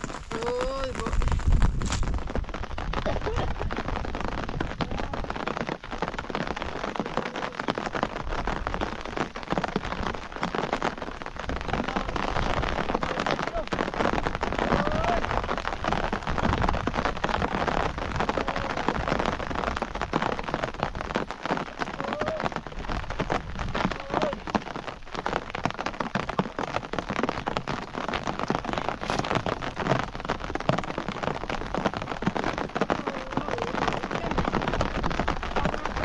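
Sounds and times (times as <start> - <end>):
rain pattering on surface: 0.0 - 36.0.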